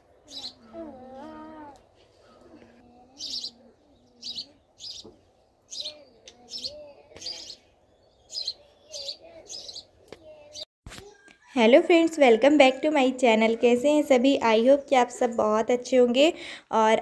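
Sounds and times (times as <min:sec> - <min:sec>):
small birds chirping: 0:00.0 - 0:11.3.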